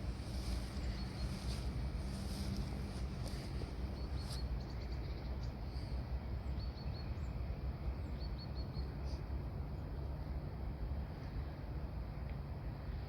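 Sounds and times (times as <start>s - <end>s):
wind rumble on microphone: 0.0s - 8.2s.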